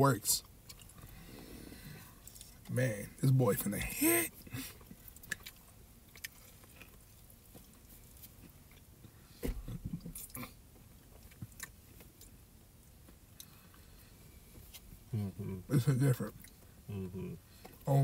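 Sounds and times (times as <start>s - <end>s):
person chewing with crunching: 0.6s - 1.5s, 2.1s - 2.7s, 4.6s - 9.2s, 10.1s - 12.4s.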